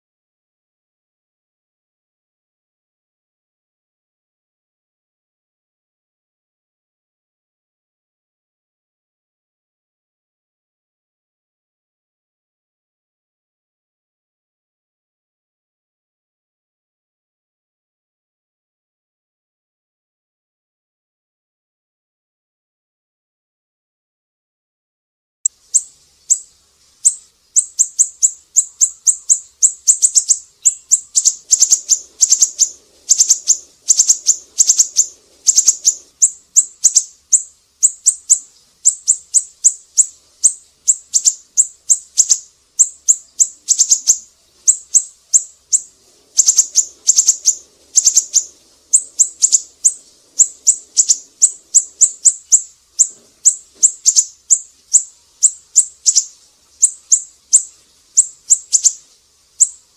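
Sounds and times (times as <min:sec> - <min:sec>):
bird chirping high-pitched: 0:25.5 - 0:59.9.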